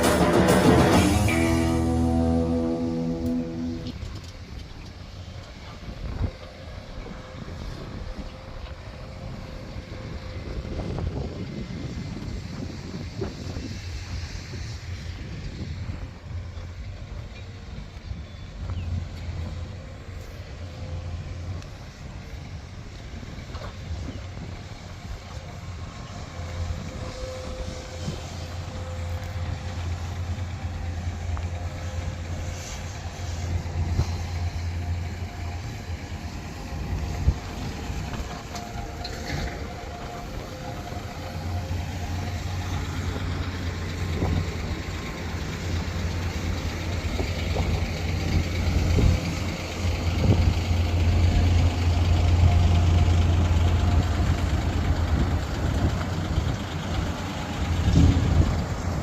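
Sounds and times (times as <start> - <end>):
engine running: 0.0 - 59.0
engine knocks: 42.0 - 59.0.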